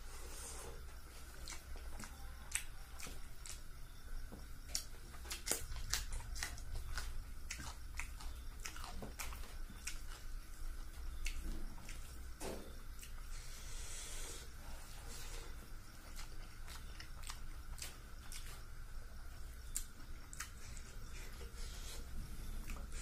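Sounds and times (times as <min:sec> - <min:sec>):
low steady hum: 0:00.0 - 0:23.0
wet chewing and mouth smacks: 0:01.3 - 0:03.8, 0:04.6 - 0:12.2, 0:16.0 - 0:18.9, 0:19.7 - 0:23.0.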